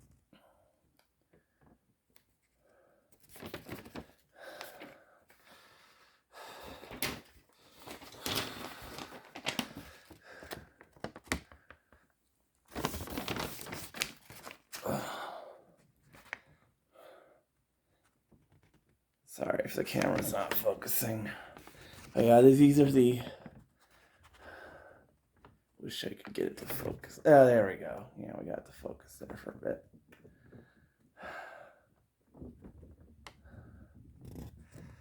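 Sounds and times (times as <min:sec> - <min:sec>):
paper rustling and crinkling: 0:03.1 - 0:05.0, 0:06.9 - 0:12.0, 0:12.6 - 0:14.9, 0:16.0 - 0:16.6, 0:19.6 - 0:24.4.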